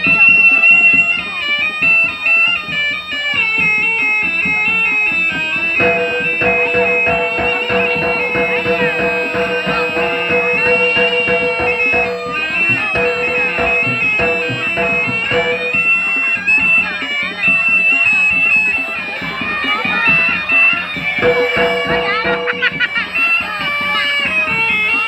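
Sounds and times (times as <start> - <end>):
dense drumming and percussion: 0.0 - 25.0
shrill reed shawm melody: 0.0 - 25.0
held low drone tone: 5.8 - 16.0.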